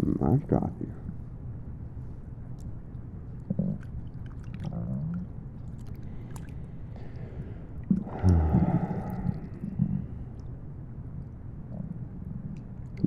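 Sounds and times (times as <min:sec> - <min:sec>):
stomach gurgling and rumbling: 0:02.9 - 0:10.6, 0:11.6 - 0:13.0.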